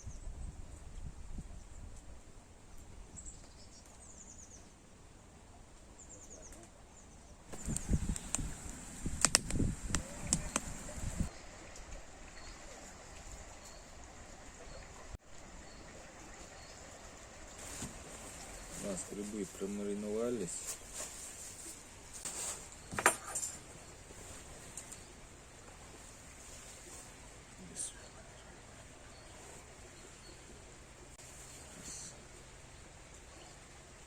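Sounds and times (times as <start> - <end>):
small birds chirping: 5.9 - 11.4, 27.6 - 33.6
sharp clicks: 7.5 - 10.9
close rustling: 16.9 - 27.9.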